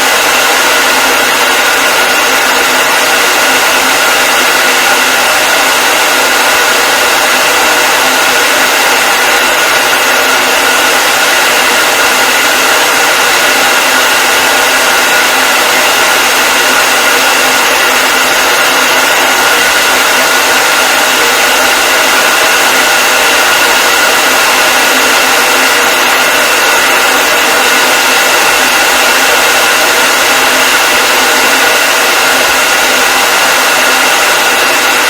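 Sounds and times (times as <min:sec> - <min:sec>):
hair dryer running: 0:00.0 - 0:35.0.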